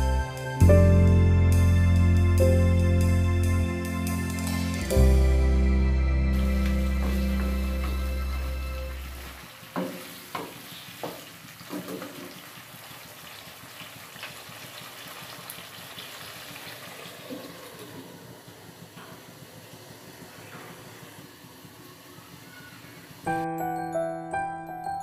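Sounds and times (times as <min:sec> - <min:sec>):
food sizzling in a frying pan: 0:08.9 - 0:17.3
wooden spatula knocking on pan: 0:09.8 - 0:12.3.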